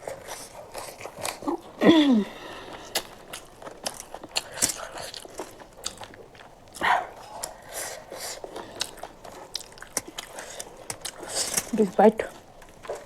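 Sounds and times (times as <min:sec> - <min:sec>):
person chewing: 0:00.0 - 0:13.0.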